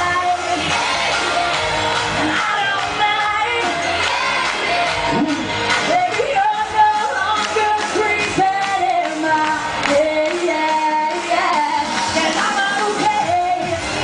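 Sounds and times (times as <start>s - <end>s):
band backing music: 0.0s - 14.0s
woman singing: 0.0s - 14.0s.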